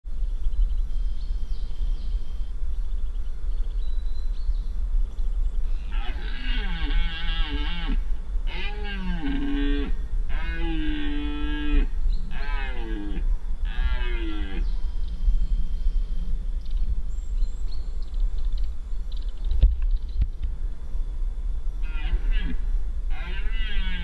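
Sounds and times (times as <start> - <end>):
red deer stag roaring: 5.8 - 14.6, 21.8 - 24.0.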